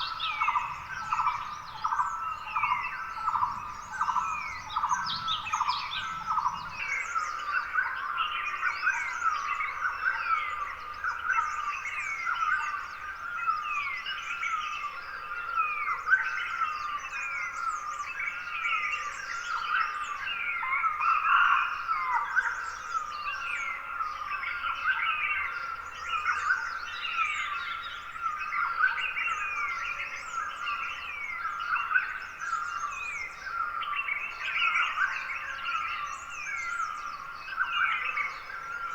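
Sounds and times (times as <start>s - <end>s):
birds chirping and whistling: 0.0s - 7.1s.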